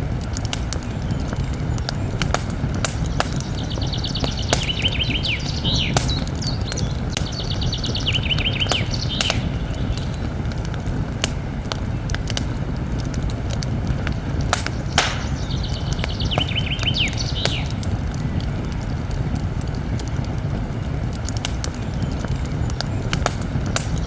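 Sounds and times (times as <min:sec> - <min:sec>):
campfire crackling: 0:00.0 - 0:24.0
fire popping and snapping: 0:00.0 - 0:24.0
low rumble of flames: 0:00.0 - 0:24.0
bird trill: 0:00.9 - 0:10.3, 0:14.6 - 0:17.8.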